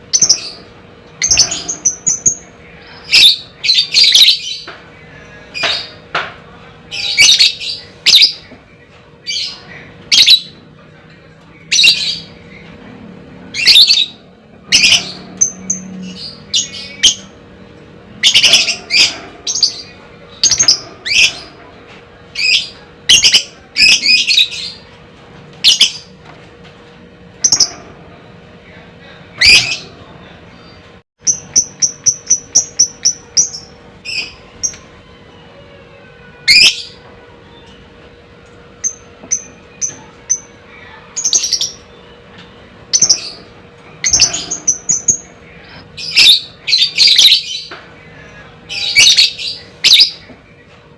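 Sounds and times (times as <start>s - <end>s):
bird chirping and squawking: 0.1s - 4.7s, 13.5s - 17.4s, 18.1s - 21.7s, 36.3s - 37.9s, 38.8s - 42.2s, 42.8s - 50.3s.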